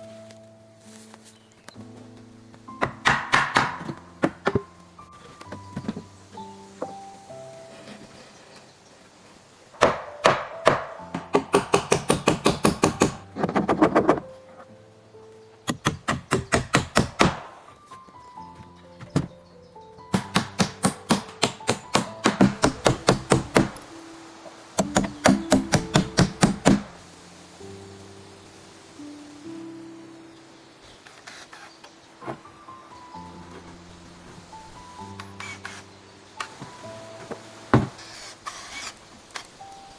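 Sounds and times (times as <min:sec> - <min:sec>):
soft background music: 0:00.0 - 0:39.9.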